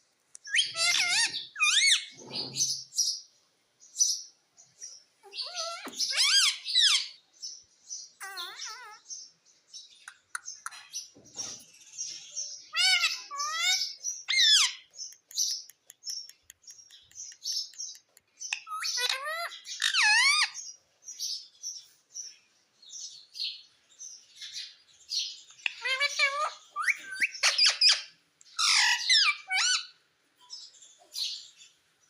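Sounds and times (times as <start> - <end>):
parrot chirping: 0.4 - 2.8, 5.2 - 7.2, 8.2 - 9.1, 12.7 - 20.7, 25.5 - 30.0.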